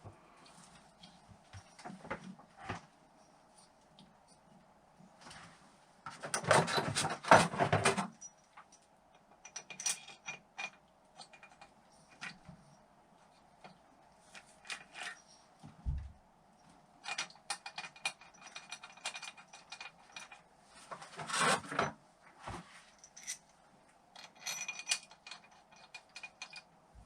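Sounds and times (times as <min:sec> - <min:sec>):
metal tools clinking on workbench: 0:24.2 - 0:26.7.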